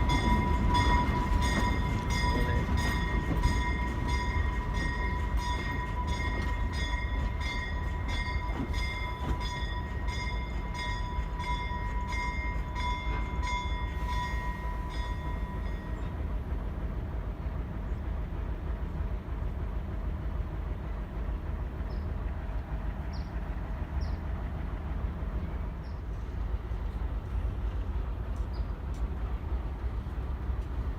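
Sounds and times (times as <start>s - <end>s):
locomotive bell ringing: 0.0s - 16.2s
diesel locomotive engine rumble: 0.0s - 30.9s.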